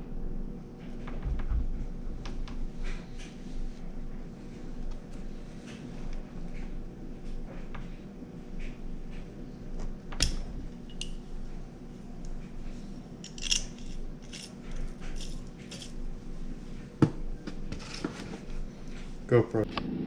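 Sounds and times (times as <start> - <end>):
metal parts and tools clinking: 10.2 - 11.2, 13.2 - 16.0.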